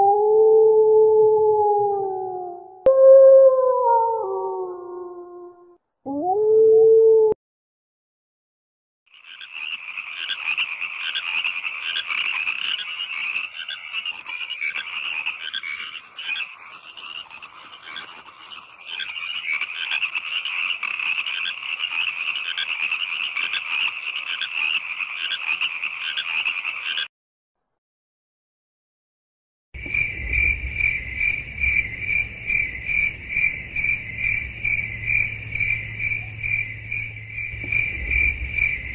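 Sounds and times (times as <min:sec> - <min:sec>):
frog croaking: 0:09.1 - 0:27.1, 0:29.8 - 0:38.9.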